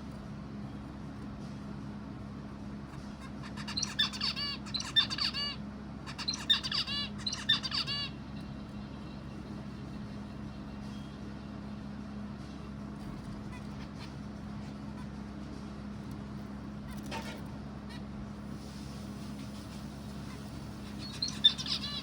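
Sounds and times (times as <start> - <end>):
steady low hum: 0.0 - 22.0
bird chirping rapidly: 3.4 - 9.6, 20.0 - 22.0.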